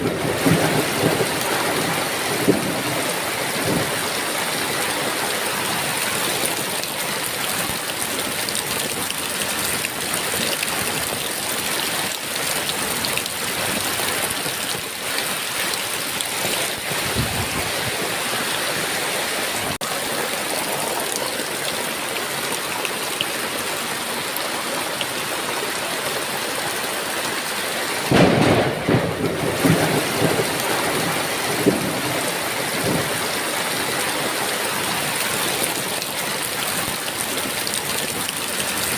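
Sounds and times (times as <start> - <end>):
thunderclap rumbling: 0.0 - 4.2, 16.5 - 18.3, 28.1 - 33.5
heavy rain falling: 0.0 - 38.9.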